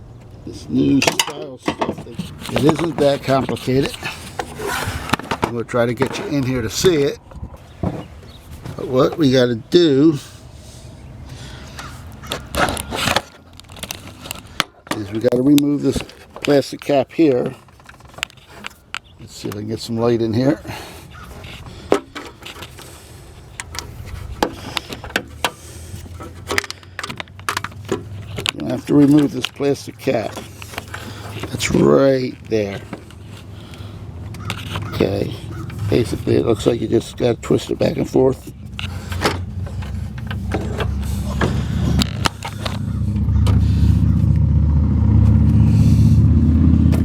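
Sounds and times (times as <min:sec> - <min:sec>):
tools handling plastic parts: 0:00.9 - 0:07.1, 0:11.7 - 0:43.6
low motor hum: 0:38.5 - 0:47.0.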